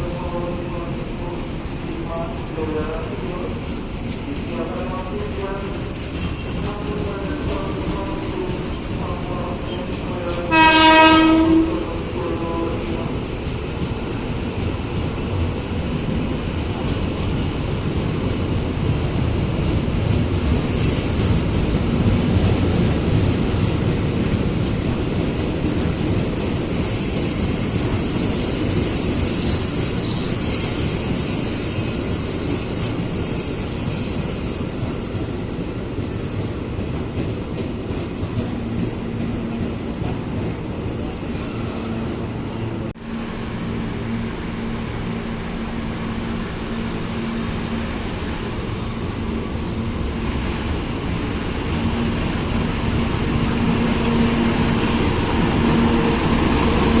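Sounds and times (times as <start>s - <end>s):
rumble of rolling train cars: 0.0s - 57.0s
train wheels squealing on rails: 20.4s - 21.8s, 24.9s - 36.8s, 38.2s - 42.6s, 53.1s - 57.0s.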